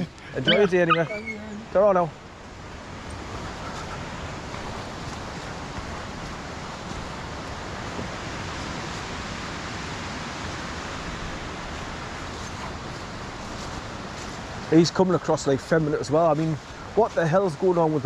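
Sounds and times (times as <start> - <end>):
fast-flowing stream: 0.0 - 18.0.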